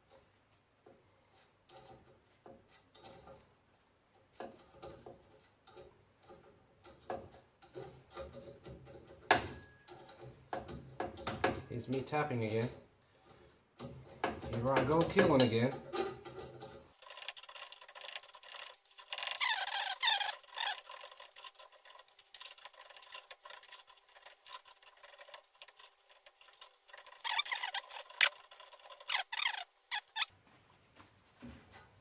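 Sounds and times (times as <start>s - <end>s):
metal clicks and ticks: 13.8s - 30.3s
thread tap squeaking: 17.0s - 30.3s.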